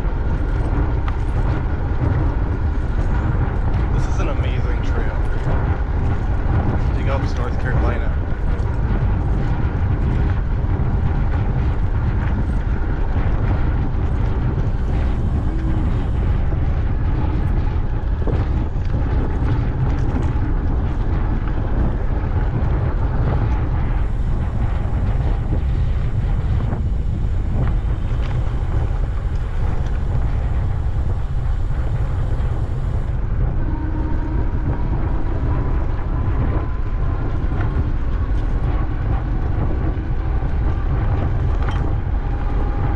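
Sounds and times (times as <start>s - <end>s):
road and riding noise: 0.0s - 42.9s
wind buffeting microphone: 0.0s - 42.9s.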